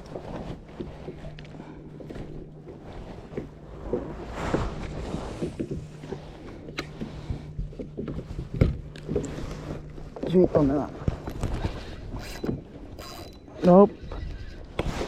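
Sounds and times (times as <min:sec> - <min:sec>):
boat low hum: 0:00.0 - 0:15.0
rushing noise: 0:03.6 - 0:06.0.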